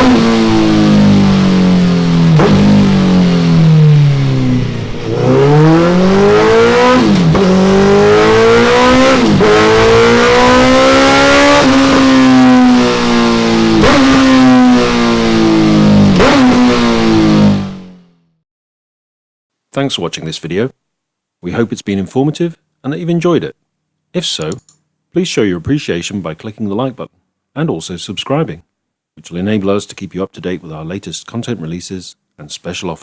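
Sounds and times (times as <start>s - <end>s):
motorcycle engine revving: 0.0s - 18.2s.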